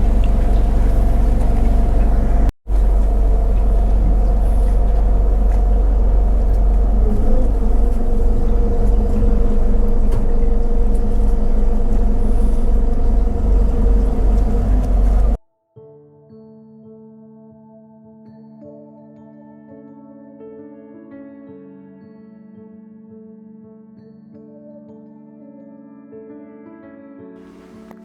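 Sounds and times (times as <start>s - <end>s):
motorboat engine droning: 0.0s - 15.4s.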